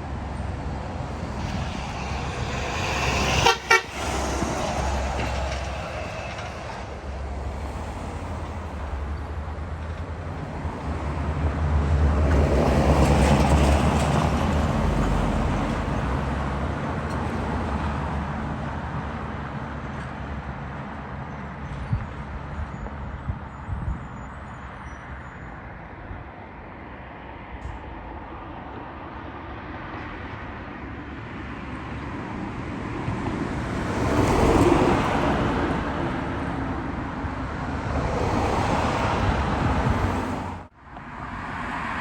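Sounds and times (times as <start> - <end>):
vehicle driving past: 0.7 - 8.2.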